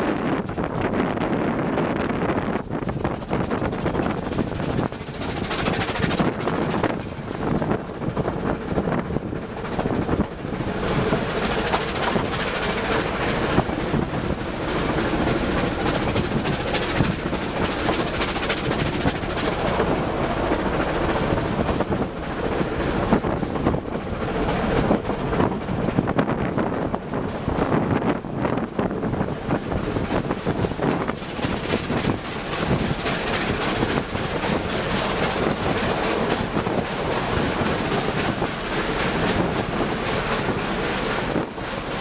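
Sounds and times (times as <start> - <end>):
train rattling and clattering: 0.0 - 42.0.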